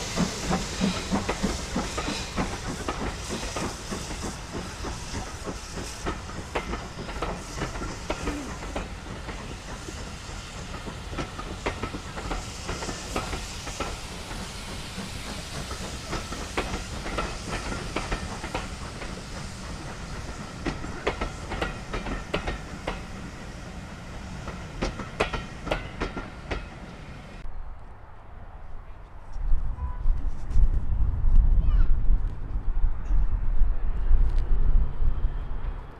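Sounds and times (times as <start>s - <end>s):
steam hissing: 0.0s - 27.4s
train wheels clicking over rail joints: 0.0s - 27.4s
train rumble: 0.0s - 35.9s.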